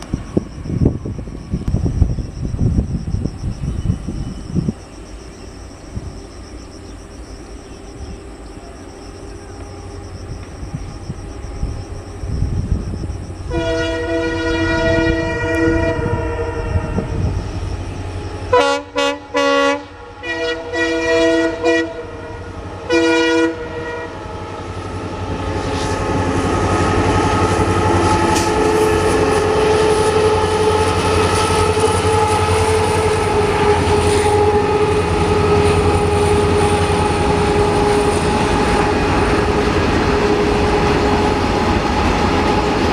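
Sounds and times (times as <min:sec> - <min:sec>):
train wheels rolling: 0:00.0 - 0:19.0, 0:19.9 - 0:42.9
locomotive engine rumble: 0:00.0 - 0:42.9
train horn blasts: 0:13.4 - 0:42.9.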